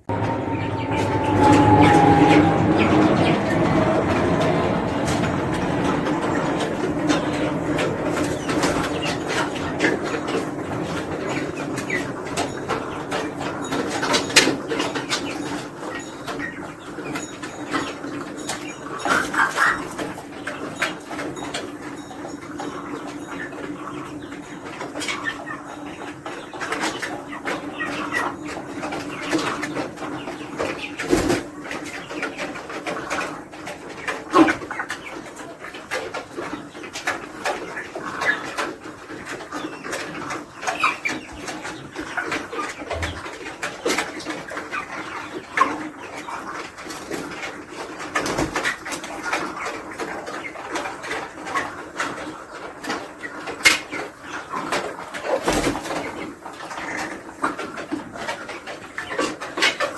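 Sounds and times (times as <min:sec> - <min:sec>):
poultry calling: 0:00.0 - 0:18.0.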